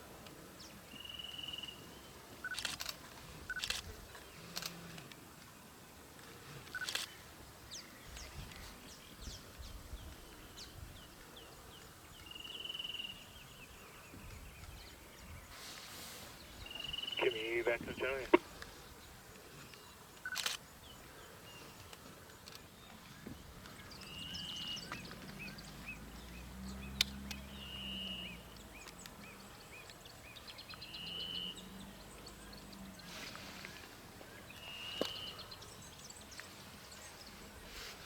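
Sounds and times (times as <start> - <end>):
birds calling: 12.5 - 38.0
faint low hum: 16.4 - 19.0.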